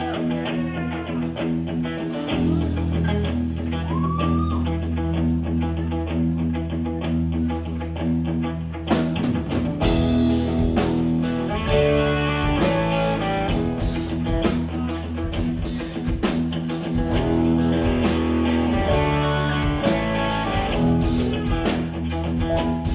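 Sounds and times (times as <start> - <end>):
electric guitar: 0.0 - 22.9
sustained bass notes: 0.0 - 22.9
drums and cymbals: 8.9 - 22.9.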